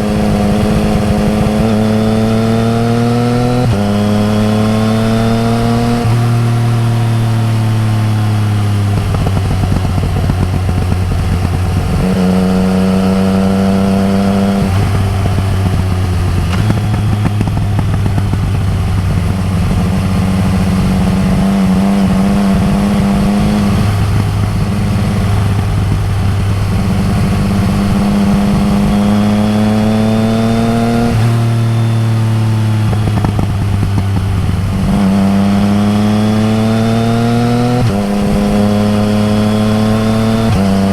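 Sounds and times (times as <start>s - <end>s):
motorcycle engine revving: 0.0s - 40.9s
wind rush: 8.7s - 40.9s.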